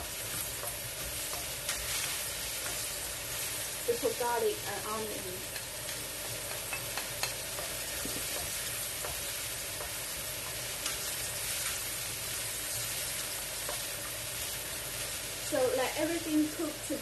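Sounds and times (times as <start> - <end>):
food sizzling in frying pan: 0.0 - 17.0.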